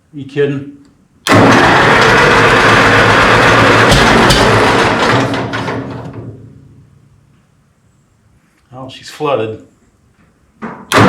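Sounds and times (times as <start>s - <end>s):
tractor engine cranking: 1.2s - 6.3s.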